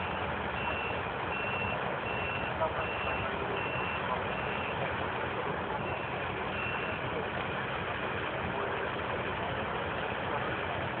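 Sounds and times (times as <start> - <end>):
truck reversing alarm beeping: 0.0 - 4.9, 5.7 - 7.2
engine rumble: 0.0 - 11.0.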